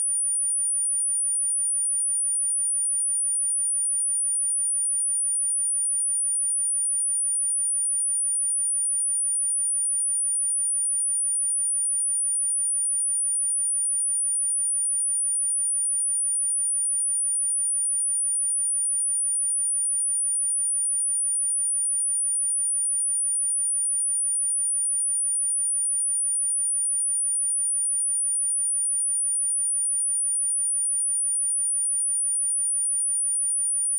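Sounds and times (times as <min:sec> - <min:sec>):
high-pitched sine-wave test tone: 0:00.0 - 0:04.0, 0:16.8 - 0:33.9.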